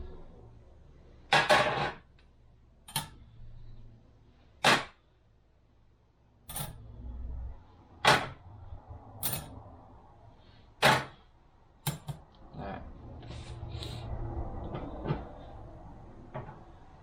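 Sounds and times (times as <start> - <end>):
metal plates clacking: 9.2 - 9.6.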